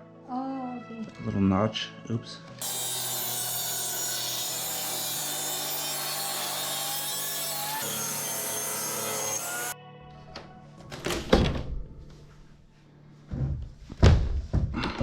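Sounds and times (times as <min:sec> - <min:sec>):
background music: 0:00.0 - 0:03.8, 0:07.9 - 0:14.0
power tool cutting wood: 0:02.6 - 0:09.8.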